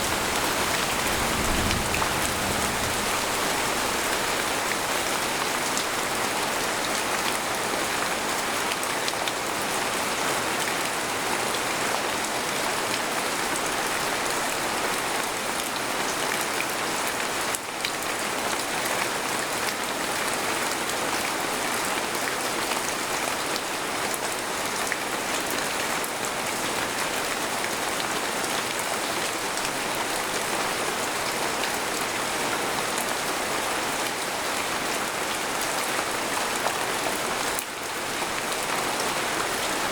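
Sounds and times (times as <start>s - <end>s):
rain falling on a tent: 0.0s - 39.9s.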